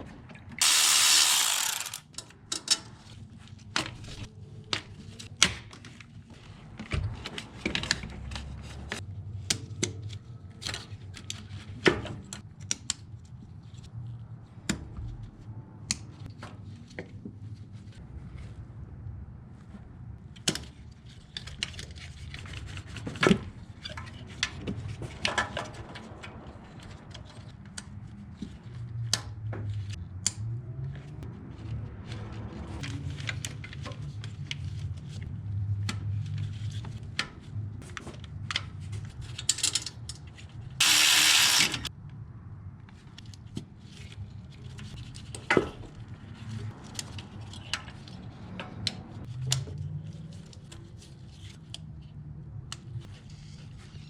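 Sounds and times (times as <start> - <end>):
loud rushing hiss: 0.6 - 2.0, 40.8 - 41.9
tools clicking and clinking: 0.6 - 2.8.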